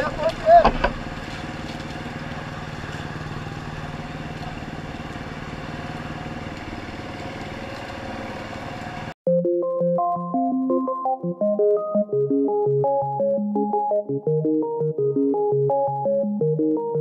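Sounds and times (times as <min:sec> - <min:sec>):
motorcycle engine idling: 0:00.0 - 0:09.2
electronic music: 0:09.3 - 0:17.0.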